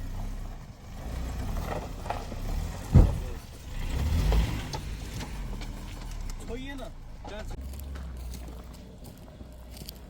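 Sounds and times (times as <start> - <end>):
car driving rumble: 0.0 - 10.0
heavy thump: 2.8 - 3.4.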